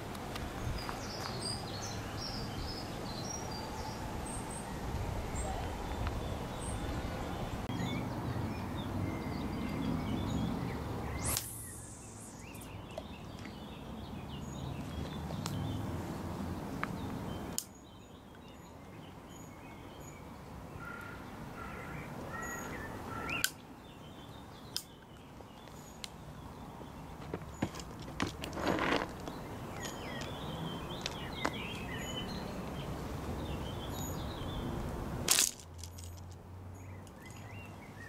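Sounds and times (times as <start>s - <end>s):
small birds chirping and singing: 0.5s - 34.8s, 35.8s - 38.0s.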